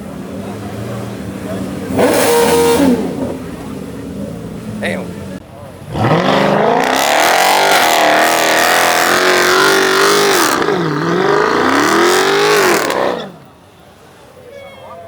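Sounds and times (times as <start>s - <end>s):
car engine revving hard: 0.4s - 4.8s, 5.8s - 13.5s.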